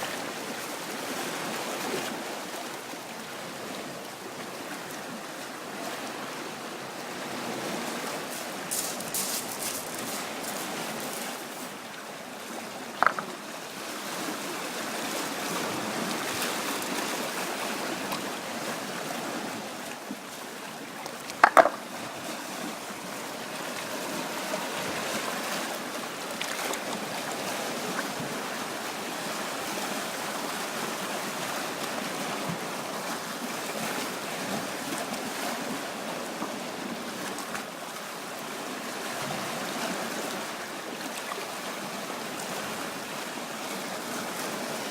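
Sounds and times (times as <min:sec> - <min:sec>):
waves washing on shore: 0:00.0 - 0:44.9
sharp knocks: 0:13.0 - 0:13.3, 0:21.4 - 0:21.8.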